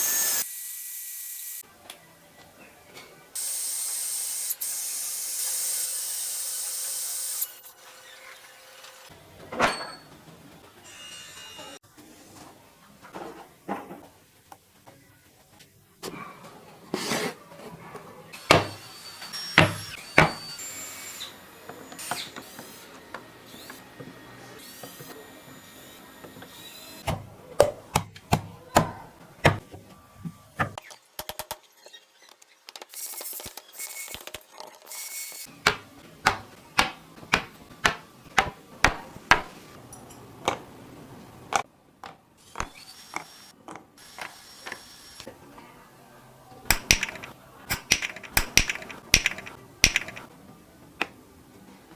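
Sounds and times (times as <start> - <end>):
knocks and taps on wood: 47.9 - 50.2.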